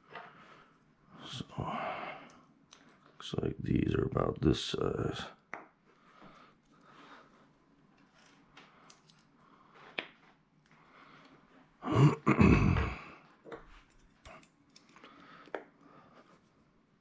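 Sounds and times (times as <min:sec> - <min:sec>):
person making throat sound: 0:11.8 - 0:13.2.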